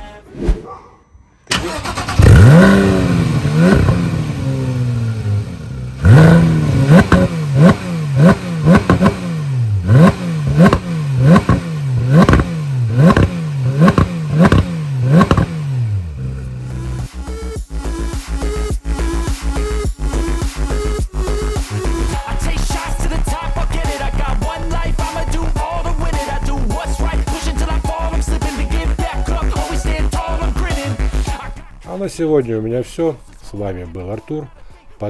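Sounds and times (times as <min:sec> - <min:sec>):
car engine throttle blips: 0:01.4 - 0:17.1
car engine starting and idling: 0:01.4 - 0:17.5.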